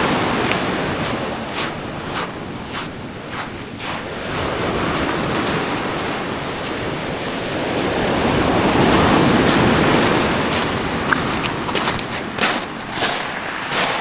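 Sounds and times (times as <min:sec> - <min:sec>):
ocean surf washing on shore: 0:00.0 - 0:14.0.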